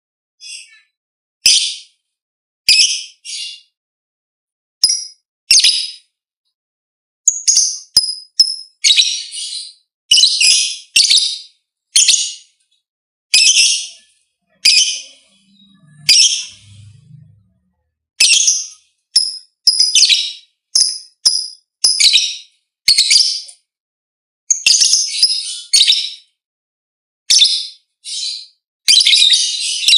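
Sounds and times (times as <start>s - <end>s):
bird chirping: 0.4s - 0.9s, 2.7s - 3.8s, 4.8s - 6.1s, 7.3s - 23.6s, 24.5s - 26.3s, 27.3s - 29.9s.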